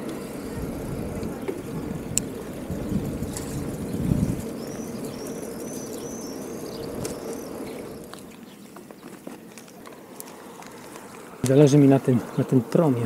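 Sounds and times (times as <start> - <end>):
passing vehicle rumble: 0.0 - 8.4
small bird chirping: 0.2 - 9.8.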